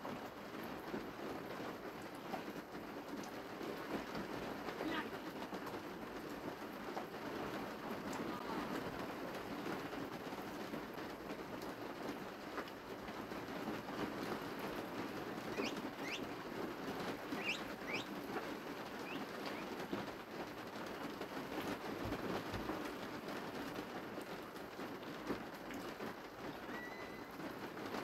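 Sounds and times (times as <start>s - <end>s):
small bird chirping: 15.5s - 16.3s, 17.3s - 18.1s, 19.0s - 19.8s.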